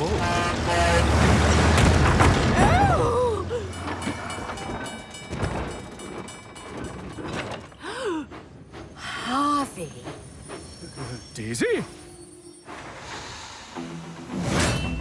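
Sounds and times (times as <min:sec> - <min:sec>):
cartoon train rumbling: 0:00.0 - 0:14.4
train squeals: 0:03.6 - 0:14.2.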